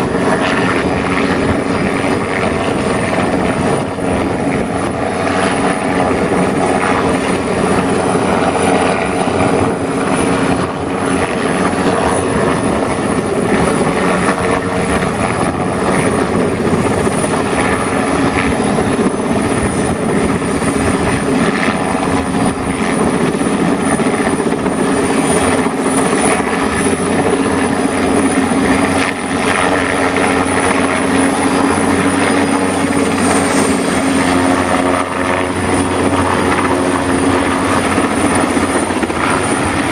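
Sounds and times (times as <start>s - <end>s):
thin high whine: 28.3s - 39.9s.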